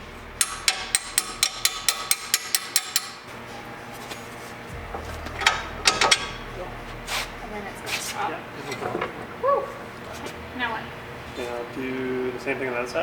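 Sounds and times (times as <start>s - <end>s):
hammer striking metal: 0.0s - 4.0s, 4.7s - 9.2s.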